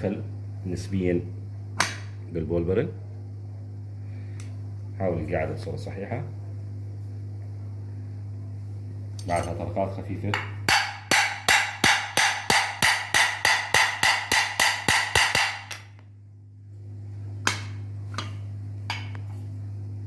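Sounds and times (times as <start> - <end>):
steady low hum: 0.0 - 20.0
hammer tapping metal: 10.3 - 15.9, 17.4 - 19.3.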